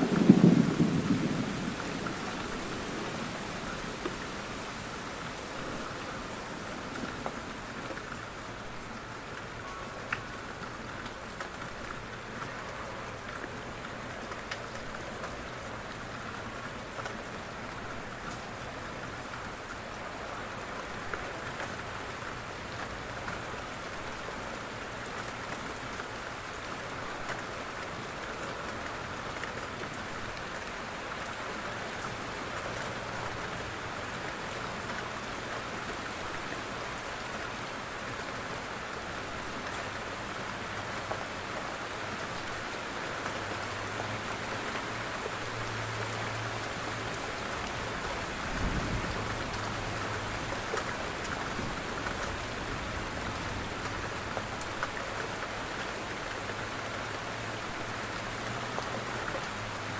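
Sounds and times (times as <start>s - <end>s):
thunder rumbling: 0.0s - 3.8s
heavy rain falling: 0.0s - 59.9s.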